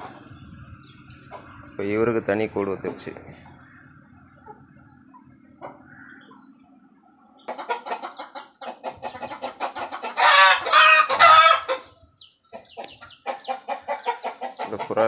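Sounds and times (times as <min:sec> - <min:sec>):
chickens clucking: 0:00.0 - 0:15.0
chicken squawks: 0:07.4 - 0:12.0.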